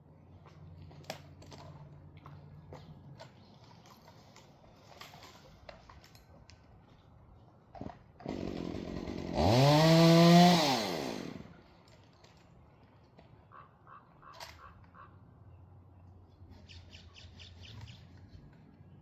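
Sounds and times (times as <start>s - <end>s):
chainsaw engine revving: 7.8s - 11.6s.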